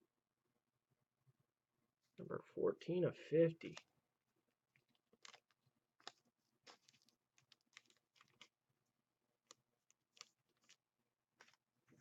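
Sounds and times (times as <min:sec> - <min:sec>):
trading cards clicking and rustling: 0:04.8 - 0:08.6, 0:09.4 - 0:10.8, 0:11.4 - 0:11.6.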